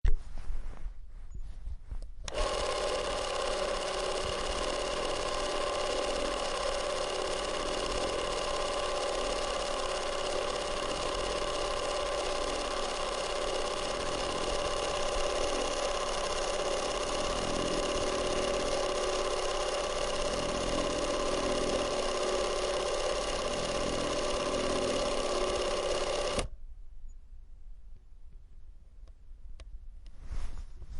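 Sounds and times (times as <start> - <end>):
film camera motor whirring: 2.3 - 26.5.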